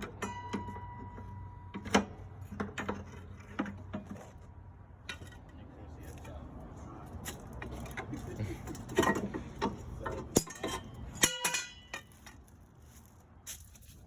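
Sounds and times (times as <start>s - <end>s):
metal tools clinking and knocking: 0.0s - 6.4s, 7.1s - 12.6s.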